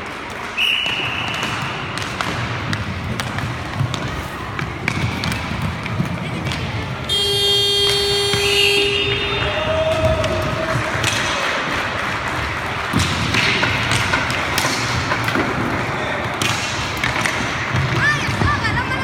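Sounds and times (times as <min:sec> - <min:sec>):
sticks and puck knocking: 0:01.3 - 0:07.1, 0:07.8 - 0:18.5
buzzing rink horn: 0:07.1 - 0:09.6.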